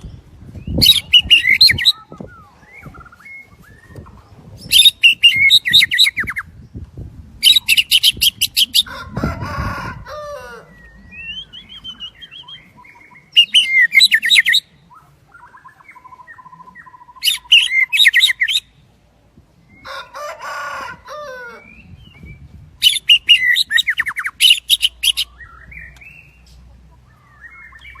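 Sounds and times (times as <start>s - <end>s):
quiet warbled bird phrases: 0.6s - 6.5s, 7.4s - 28.0s
bird singing ringing notes: 10.6s - 18.7s.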